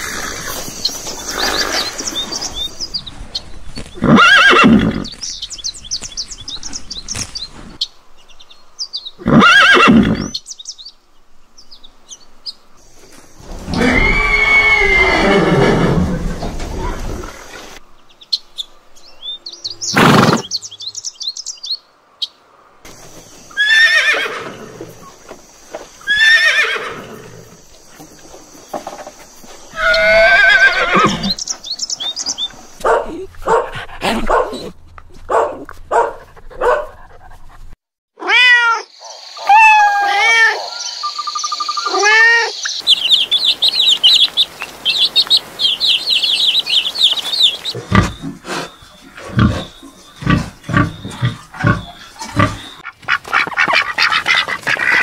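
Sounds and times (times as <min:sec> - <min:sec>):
horse whinnies: 0:04.0 - 0:05.1, 0:09.2 - 0:10.3, 0:13.6 - 0:16.4, 0:23.6 - 0:24.8, 0:26.1 - 0:27.1, 0:29.8 - 0:31.4
fast high twittering: 0:39.0 - 0:52.9
pig grunting: 0:47.7 - 0:52.8.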